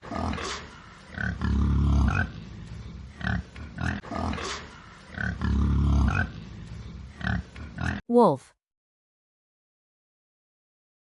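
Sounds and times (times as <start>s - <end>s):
wild boar grunting: 0.0s - 2.4s, 3.1s - 8.0s.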